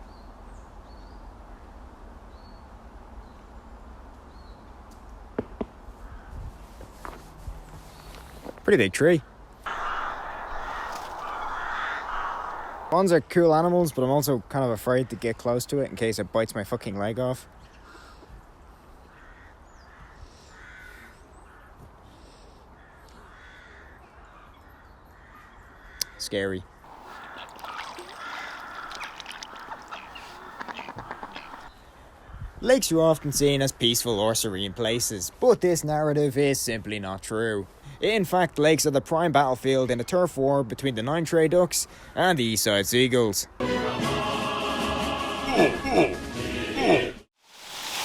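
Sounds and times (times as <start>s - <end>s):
high bird chirps: 9.7s - 13.0s, 26.9s - 31.7s
low outdoor rumble: 9.7s - 13.0s
low outdoor background: 9.7s - 13.2s, 26.9s - 31.7s.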